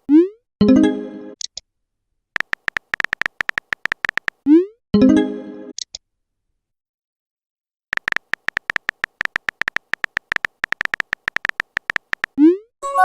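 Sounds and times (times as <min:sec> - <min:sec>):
keyboard tapping clicks: 0:02.4 - 0:04.4, 0:07.9 - 0:12.4.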